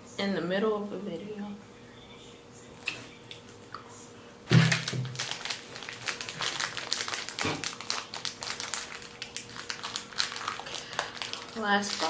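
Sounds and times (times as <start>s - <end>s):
plastic wrapper crinkling: 4.5s - 12.0s.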